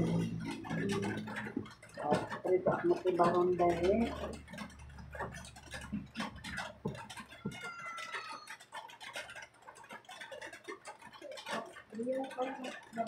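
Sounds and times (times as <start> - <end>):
eating clicks and taps: 0.0 - 13.0.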